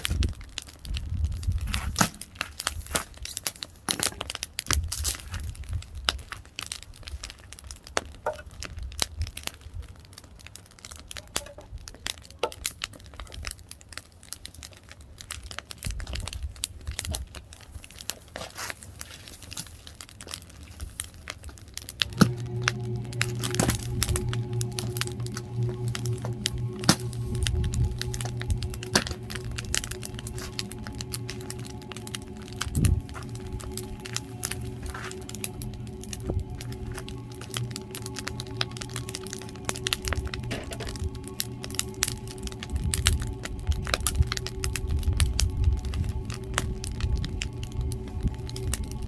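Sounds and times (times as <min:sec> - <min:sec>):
wood fire crackling and popping: 0:00.0 - 0:49.0
music: 0:22.0 - 0:49.0.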